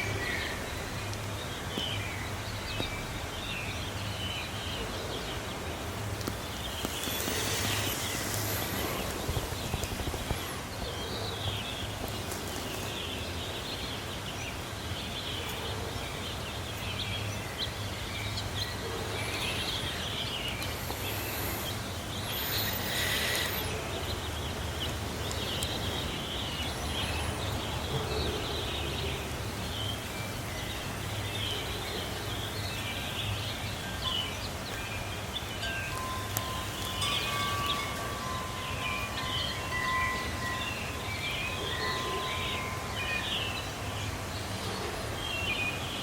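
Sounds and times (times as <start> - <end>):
rush of noise: 0.0 - 12.6, 17.6 - 29.2
small birds chirping: 0.0 - 46.0.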